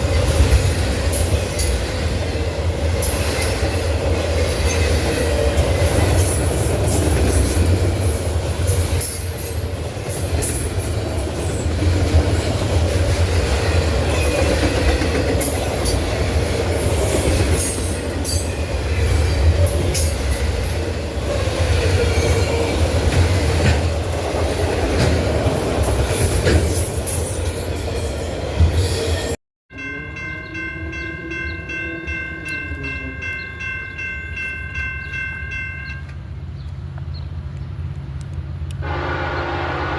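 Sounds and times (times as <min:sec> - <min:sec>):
train wheels clattering on rails: 0:00.0 - 0:29.4
locomotive horn chord: 0:38.8 - 0:39.9.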